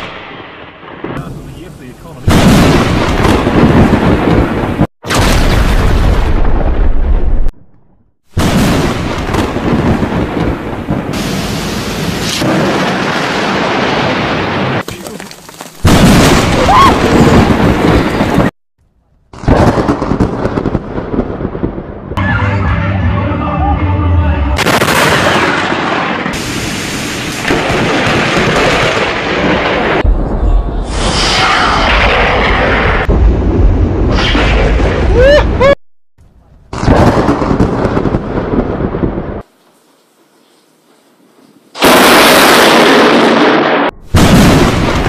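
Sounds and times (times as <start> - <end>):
loud thunderclap: 2.2 - 7.5, 8.4 - 14.8, 15.8 - 18.6, 19.4 - 22.3, 24.6 - 35.8, 36.7 - 39.4, 41.8 - 45.0
thunder: 2.2 - 7.5, 8.4 - 14.8, 15.8 - 18.6, 19.4 - 22.5, 24.5 - 35.8, 36.7 - 39.4, 41.8 - 45.0.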